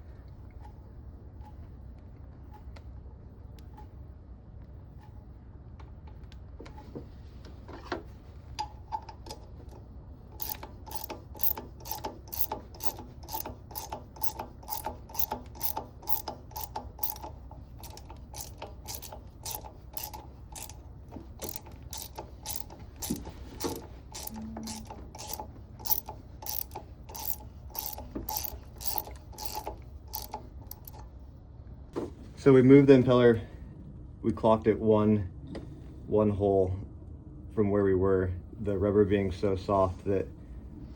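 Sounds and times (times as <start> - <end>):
ratchet wrench clicking: 10.4 - 31.0.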